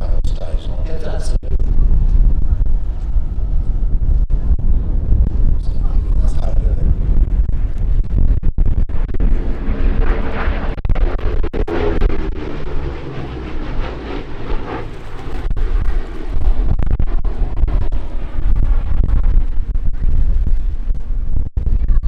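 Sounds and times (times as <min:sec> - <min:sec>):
aircraft piston engines fly-by: 0:11.7 - 0:16.4.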